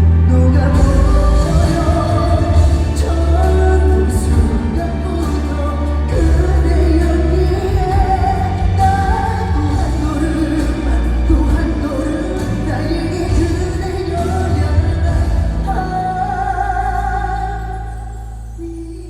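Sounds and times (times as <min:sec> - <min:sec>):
heavy bass: 0:00.0 - 0:19.0
man singing pop ballad with band: 0:00.0 - 0:19.0.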